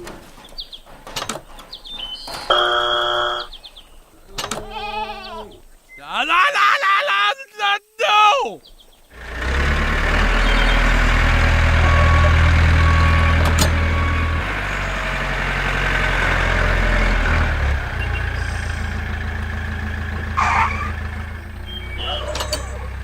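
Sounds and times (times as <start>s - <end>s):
heavy vehicle engine running: 9.1s - 23.0s.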